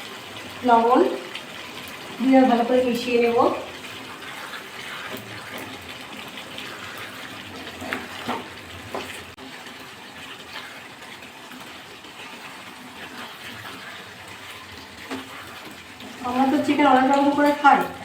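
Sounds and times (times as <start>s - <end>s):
chicken sizzling in a pan: 0.0s - 18.0s
spoon scraping and knocking: 3.8s - 9.3s, 13.1s - 16.3s.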